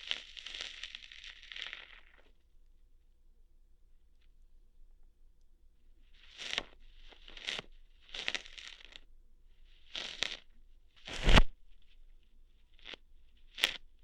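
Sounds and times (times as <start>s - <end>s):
crackly tearing bursts: 0.0s - 2.3s, 6.2s - 9.0s, 9.8s - 12.0s, 12.7s - 13.9s.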